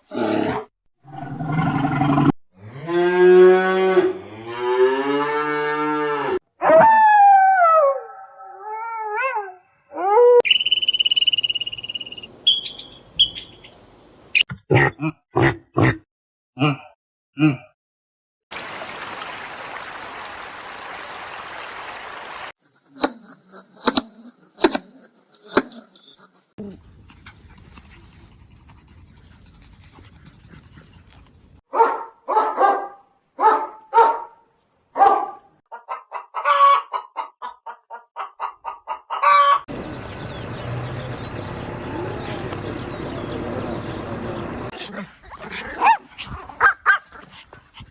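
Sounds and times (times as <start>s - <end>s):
animal calls: 10.4s - 13.9s, 39.2s - 47.4s
loud barks: 31.7s - 36.8s, 39.2s - 47.2s.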